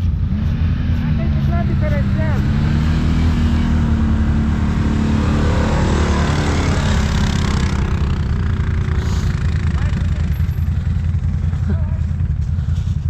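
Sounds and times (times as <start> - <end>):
atv engine running: 0.0 - 13.0
rushing noise: 0.2 - 9.8.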